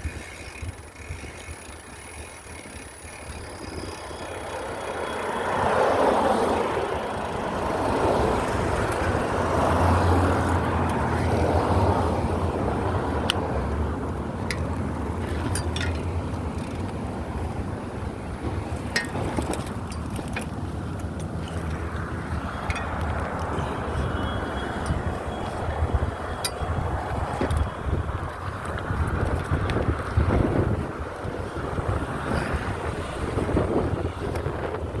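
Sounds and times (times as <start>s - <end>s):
vehicle passing by: 4.2s - 14.1s, 21.0s - 30.9s.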